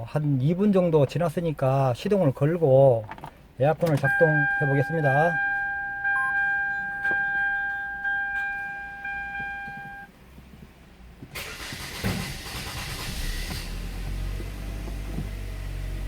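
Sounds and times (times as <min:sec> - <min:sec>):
car engine cranking and idling: 0:03.0 - 0:16.0
car warning chime dinging: 0:03.8 - 0:10.1.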